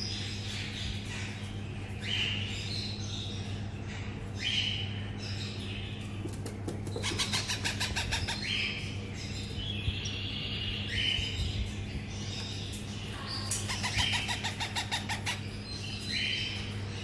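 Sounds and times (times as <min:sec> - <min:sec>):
baby parrots begging calls: 0:07.0 - 0:08.9, 0:13.1 - 0:16.6.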